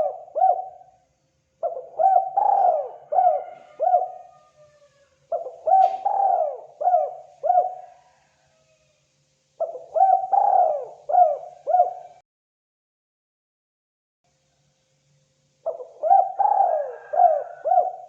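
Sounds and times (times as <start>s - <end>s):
dove cooing: 0.0s - 1.0s, 1.6s - 8.8s, 9.6s - 12.2s, 15.7s - 18.0s.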